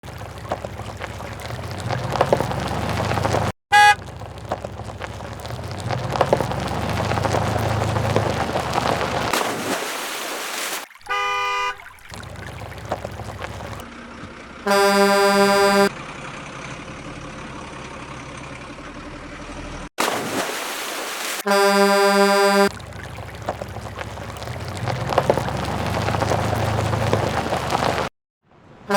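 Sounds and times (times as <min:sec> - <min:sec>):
rough rumbling motor noise: 0:00.0 - 0:09.4, 0:12.2 - 0:19.9, 0:21.5 - 0:28.1
vehicle horn toots: 0:03.7 - 0:04.0, 0:11.1 - 0:11.9, 0:14.6 - 0:15.9, 0:21.4 - 0:22.7
warbling horn: 0:03.7 - 0:04.0, 0:14.7 - 0:15.9, 0:21.4 - 0:22.7.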